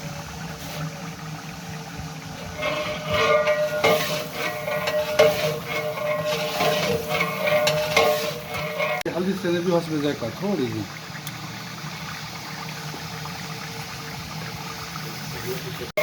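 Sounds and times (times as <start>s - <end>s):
food frying with a hiss: 0.0s - 16.0s
metal ladle scraping a pot: 2.4s - 9.1s.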